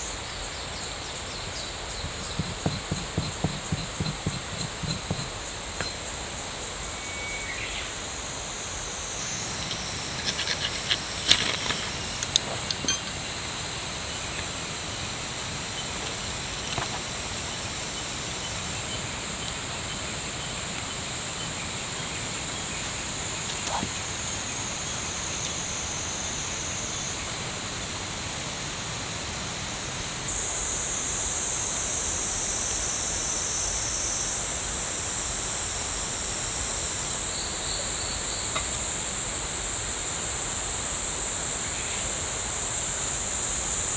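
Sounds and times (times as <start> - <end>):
insects trilling: 0.0 - 43.9.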